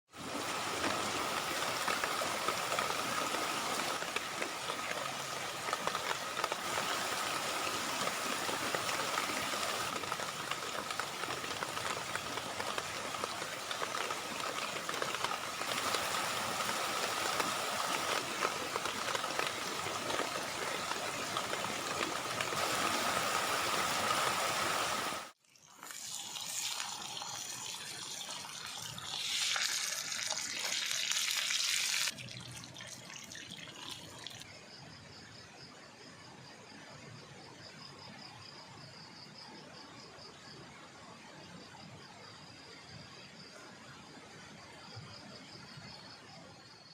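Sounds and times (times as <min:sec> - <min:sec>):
heavy rain falling: 0:00.2 - 0:25.3.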